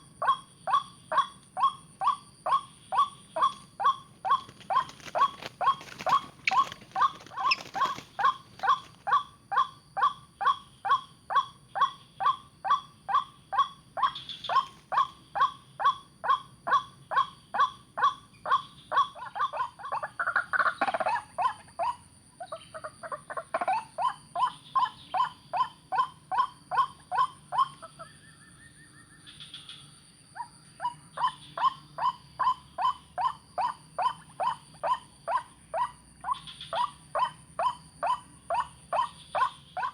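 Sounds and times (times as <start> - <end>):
waterhen calling: 1.1 - 9.2.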